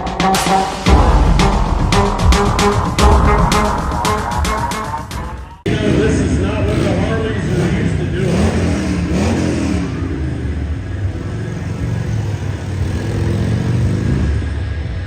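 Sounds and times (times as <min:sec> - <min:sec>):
dirt bike engine revving: 0:05.7 - 0:14.5.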